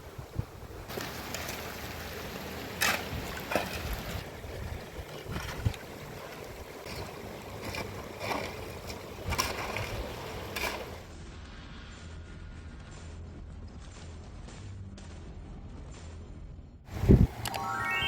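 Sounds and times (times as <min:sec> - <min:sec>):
running floodwater: 0:00.0 - 0:11.1
rain: 0:00.8 - 0:04.3
sharp water splashes: 0:00.9 - 0:11.1.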